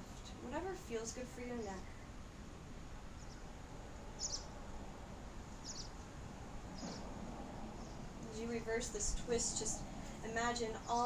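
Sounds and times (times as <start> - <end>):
low background noise: 0.0 - 11.0
small bird chirping: 3.1 - 3.5, 4.2 - 4.6, 5.5 - 7.1.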